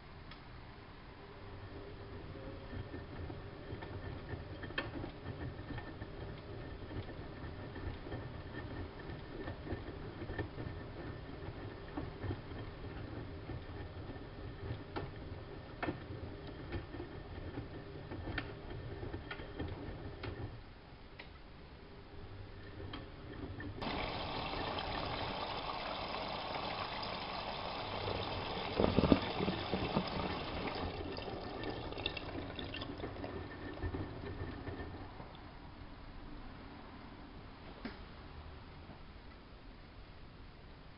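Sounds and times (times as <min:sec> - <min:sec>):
washing machine rumbling: 0:22.2 - 0:35.8
water rushing in: 0:23.8 - 0:33.3.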